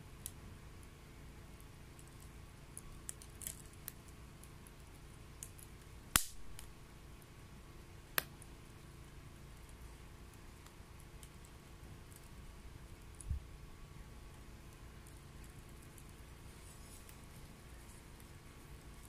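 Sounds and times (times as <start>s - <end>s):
wet wood crackling in stove: 0.0s - 19.0s
sharp pops: 6.1s - 6.7s.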